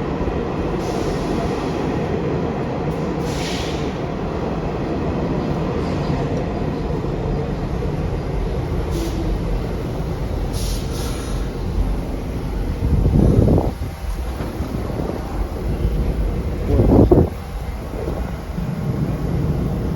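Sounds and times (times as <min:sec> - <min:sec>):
subway train rumble: 0:00.0 - 0:19.9
short high hisses: 0:03.2 - 0:04.0, 0:08.9 - 0:09.3, 0:10.5 - 0:11.5.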